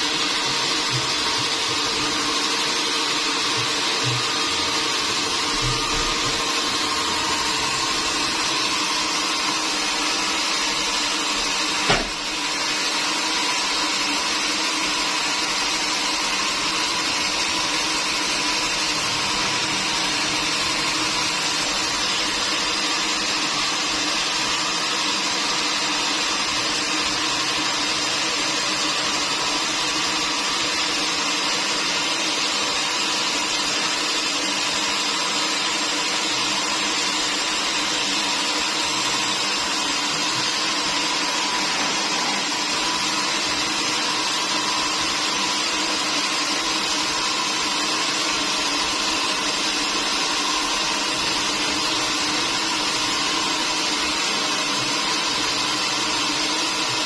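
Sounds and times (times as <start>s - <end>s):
sawmill machinery whining: 0.0s - 57.0s
sharp knock: 11.8s - 12.2s.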